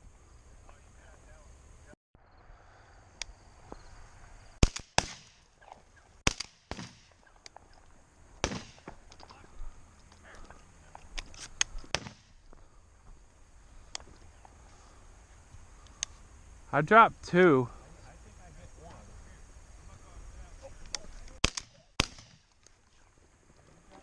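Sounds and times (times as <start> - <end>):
shotgun shots: 4.6 - 5.4, 6.2 - 7.2, 8.4 - 8.9, 11.9 - 12.4, 21.4 - 22.4.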